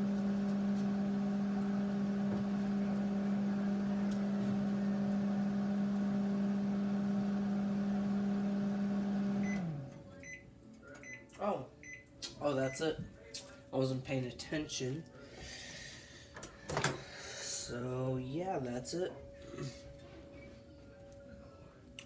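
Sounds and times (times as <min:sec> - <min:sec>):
microwave oven humming: 0:00.0 - 0:11.3.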